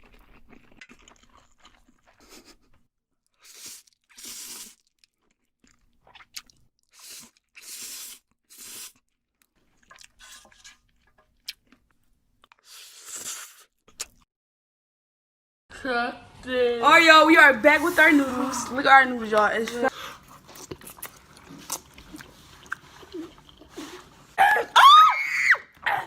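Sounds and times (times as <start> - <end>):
noodles chewed and slurped: 0.0 - 14.2, 17.4 - 24.5.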